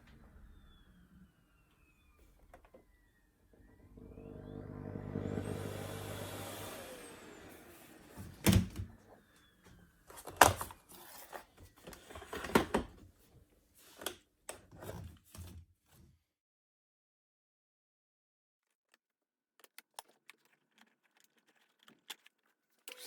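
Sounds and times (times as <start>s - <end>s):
vacuum cleaner motor winding down: 0.0s - 9.5s
clicks and knocks of handling: 18.9s - 23.0s.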